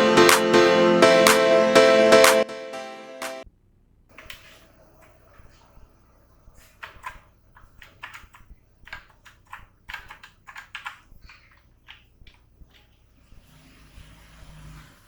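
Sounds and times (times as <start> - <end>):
keyboard key clicks: 6.8 - 12.9.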